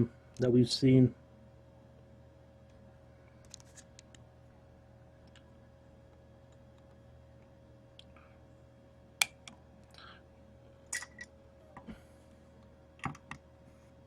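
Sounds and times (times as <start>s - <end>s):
soft rustling of cards: 3.2s - 4.3s.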